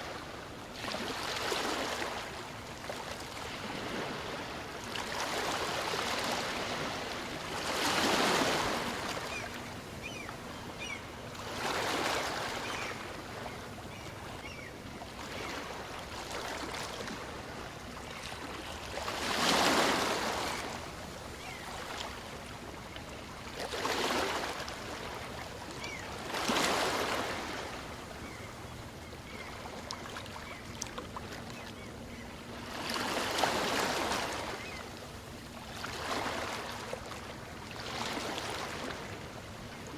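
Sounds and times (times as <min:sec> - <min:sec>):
small waves breaking on beach: 0:00.0 - 0:28.4, 0:32.5 - 0:34.9.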